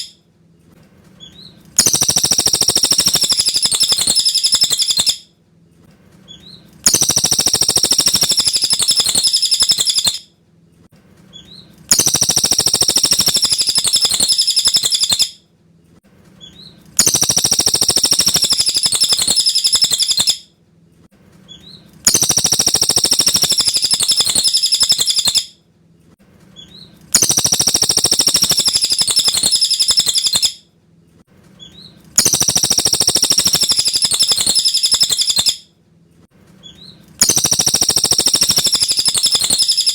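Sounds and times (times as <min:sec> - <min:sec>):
fast high bird chirping and whistling: 0:01.2 - 0:05.3, 0:06.3 - 0:10.3, 0:11.3 - 0:15.4, 0:16.5 - 0:20.4, 0:21.5 - 0:25.5, 0:26.6 - 0:30.6, 0:31.6 - 0:35.6, 0:36.6 - 0:39.9.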